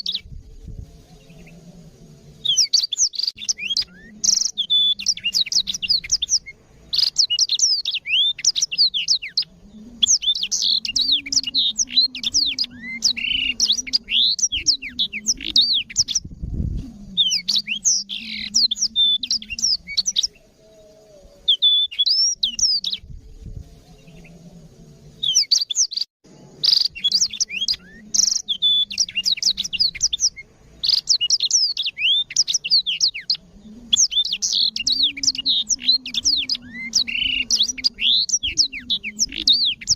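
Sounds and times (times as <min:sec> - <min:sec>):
canary singing: 0:00.0 - 0:23.1, 0:23.8 - 0:39.9.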